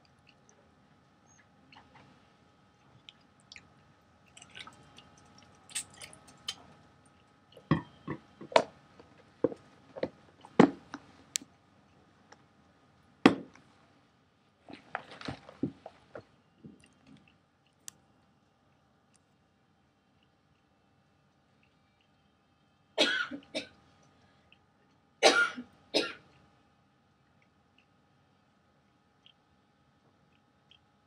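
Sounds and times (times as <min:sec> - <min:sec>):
biscuit being chewed: 0:00.0 - 0:12.5, 0:14.7 - 0:19.4, 0:28.8 - 0:31.0.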